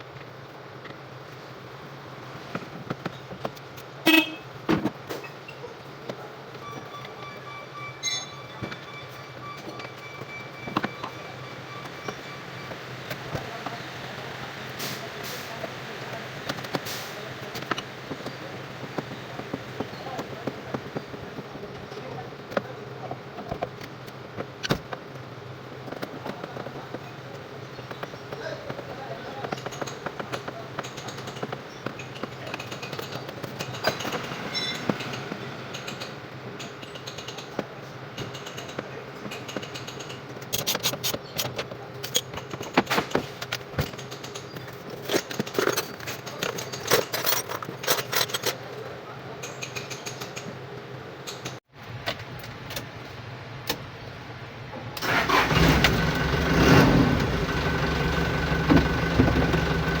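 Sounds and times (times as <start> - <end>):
truck diesel engine starting and idling: 55.0 - 60.0.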